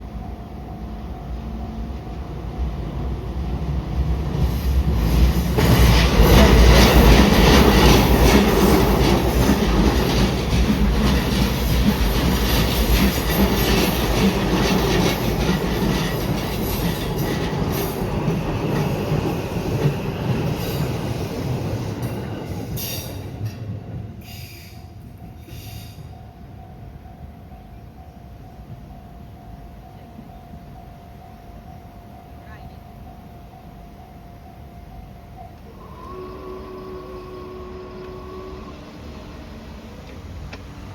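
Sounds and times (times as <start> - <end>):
train wheels clacking over rail joints: 4.3 - 23.8.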